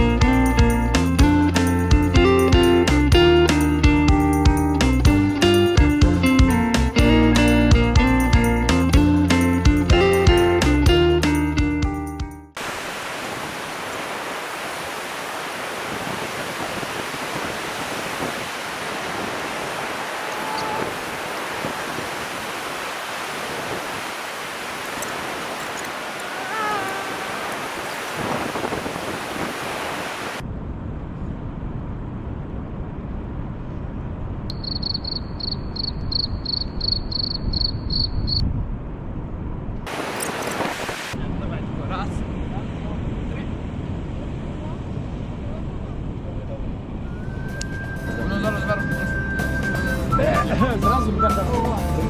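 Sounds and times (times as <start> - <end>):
ocean surf washing on shore: 12.6 - 30.4, 39.9 - 41.4
low rumbling outdoor noise: 30.0 - 37.5, 38.4 - 40.5, 41.2 - 49.3
high chirps: 34.5 - 38.4.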